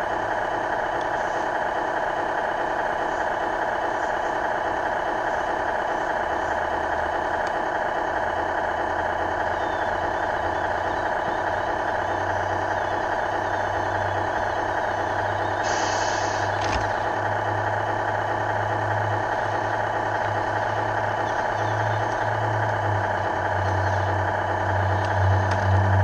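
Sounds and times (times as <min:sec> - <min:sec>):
rc excavator whir and hum: 0:00.0 - 0:26.0
short hiss: 0:15.7 - 0:16.5.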